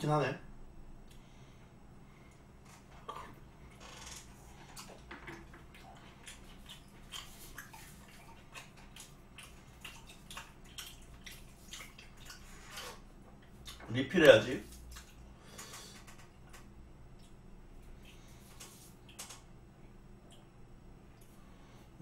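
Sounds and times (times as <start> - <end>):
wet chewing mouth smacks: 4.6 - 13.9, 14.6 - 15.3, 16.1 - 19.4.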